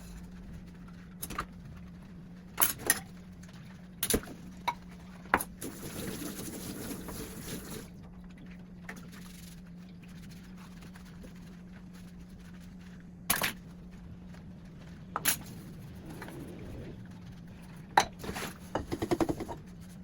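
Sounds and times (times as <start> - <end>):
steady low hum: 0.0 - 20.0
tap water running: 5.6 - 8.0.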